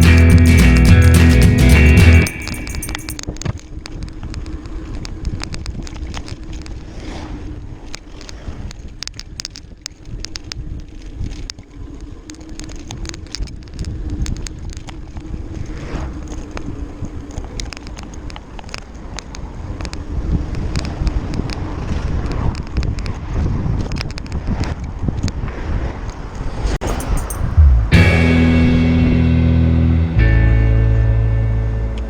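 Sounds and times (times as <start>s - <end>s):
wind on microphone: 19.0s - 28.0s
bicycle rattling clicks: 26.8s - 27.6s.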